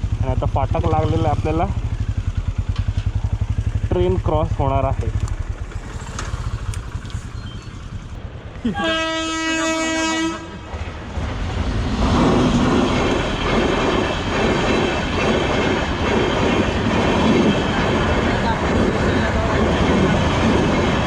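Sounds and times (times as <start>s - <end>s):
train wheels rumbling on rails: 0.0s - 21.0s
train horn: 8.8s - 10.6s.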